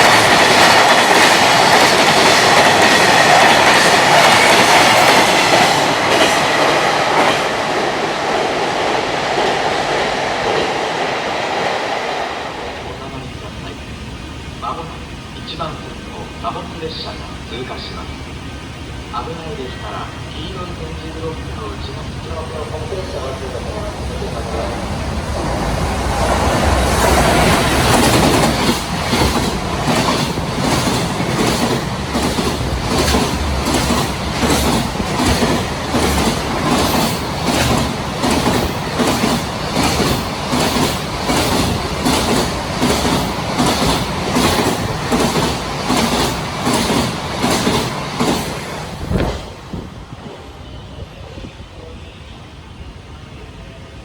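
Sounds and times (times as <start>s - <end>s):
train wheels clickety-clack: 0.0s - 13.6s, 22.3s - 50.4s
locomotive rumble: 12.0s - 51.9s.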